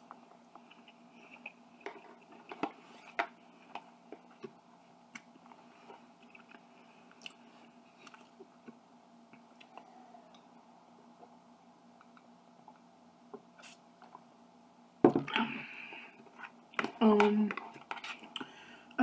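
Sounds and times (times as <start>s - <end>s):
person chewing food: 0.0s - 2.6s, 5.1s - 10.5s.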